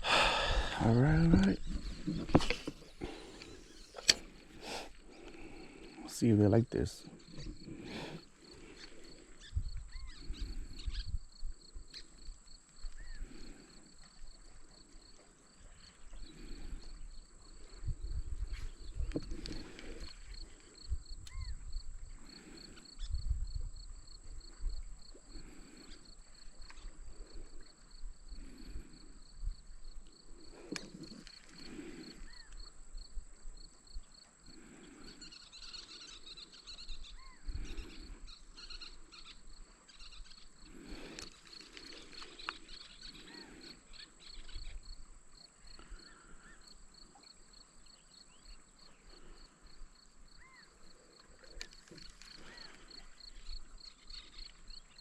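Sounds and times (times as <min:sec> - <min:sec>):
wind rumbling on microphone: 0:00.0 - 0:03.2, 0:09.4 - 0:11.9, 0:16.1 - 0:25.6
pulsing insect chirr: 0:00.0 - 0:55.0
faint bird chirps: 0:05.6 - 0:13.4, 0:21.1 - 0:23.3, 0:30.8 - 0:32.7, 0:34.8 - 0:40.7, 0:41.9 - 0:45.0, 0:50.3 - 0:50.8, 0:51.5 - 0:55.0.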